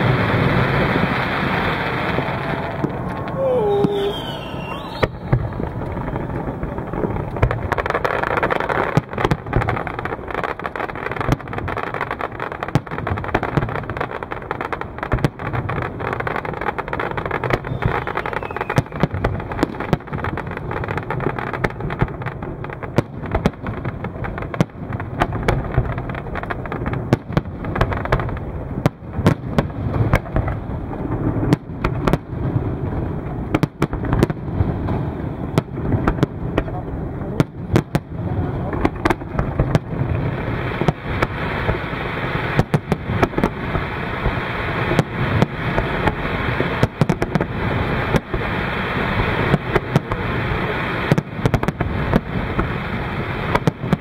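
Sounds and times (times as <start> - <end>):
constant rumble: 0.0 - 8.1, 34.9 - 40.5
fireworks bangs: 0.0 - 54.0.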